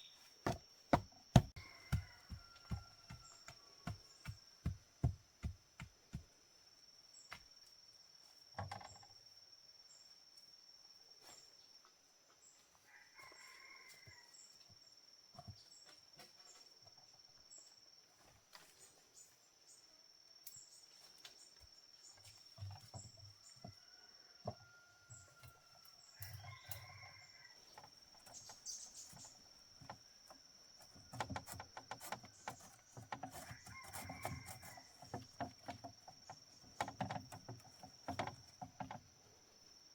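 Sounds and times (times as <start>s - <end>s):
faint chicken calls: 1.4s - 4.8s, 12.6s - 14.7s, 22.6s - 29.9s, 30.8s - 39.0s.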